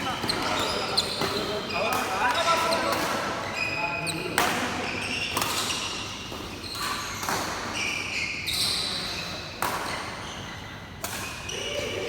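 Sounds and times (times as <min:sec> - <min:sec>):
shoes squeaking on court floor: 0:00.0 - 0:11.8
racket hitting shuttlecock: 0:04.3 - 0:08.1, 0:09.6 - 0:11.8.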